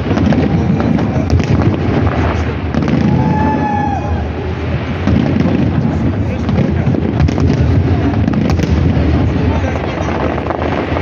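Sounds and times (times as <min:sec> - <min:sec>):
fireworks booming: 0:00.0 - 0:11.0
fireworks crackling: 0:00.0 - 0:11.0
high firework whistle: 0:02.1 - 0:05.4.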